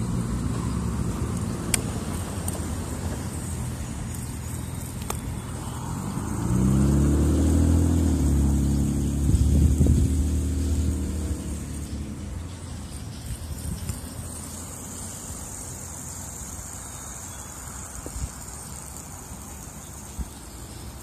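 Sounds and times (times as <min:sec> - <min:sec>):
fidget spinner whirring: 0:00.0 - 0:21.0.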